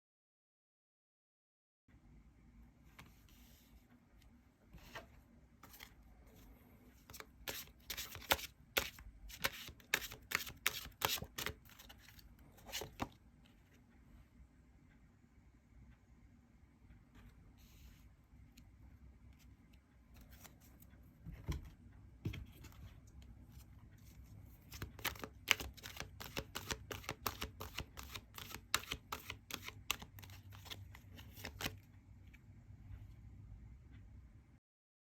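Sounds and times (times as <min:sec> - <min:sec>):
cards clicking and tapping: 0:07.1 - 0:12.0, 0:24.7 - 0:31.8.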